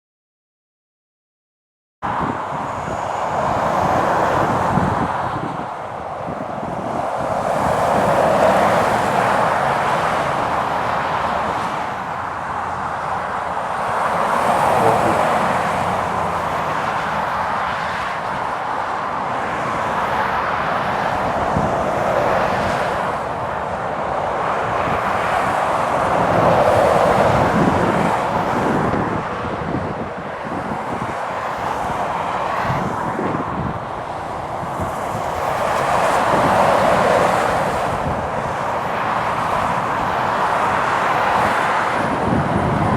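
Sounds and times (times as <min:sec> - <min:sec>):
wind: 0:02.0 - 0:42.9
tyres hissing on wet road: 0:07.0 - 0:19.2, 0:34.2 - 0:42.9.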